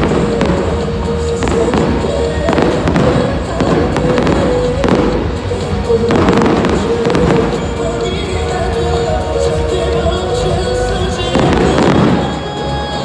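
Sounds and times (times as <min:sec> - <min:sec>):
fireworks bangs and crackles: 0:00.0 - 0:08.3, 0:11.3 - 0:12.5
music playing: 0:00.0 - 0:13.0.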